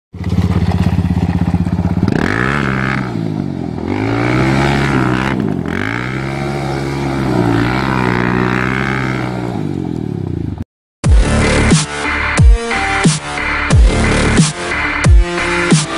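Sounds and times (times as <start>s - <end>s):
quad engine revving: 0.2s - 10.6s.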